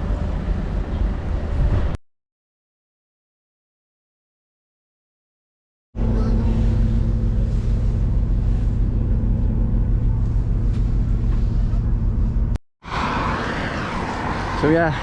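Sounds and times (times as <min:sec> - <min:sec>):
train interior drone: 0:00.0 - 0:02.0, 0:06.0 - 0:15.0.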